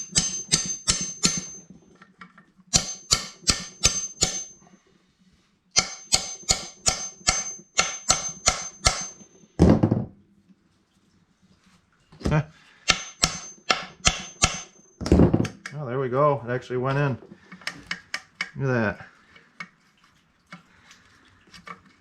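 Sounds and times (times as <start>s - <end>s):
hammer blows on metal: 2.8s - 4.6s, 5.8s - 9.2s.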